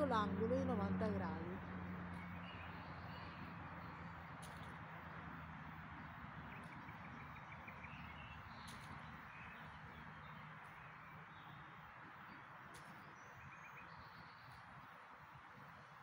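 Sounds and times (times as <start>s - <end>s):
distant bird chirps: 0.0s - 16.0s.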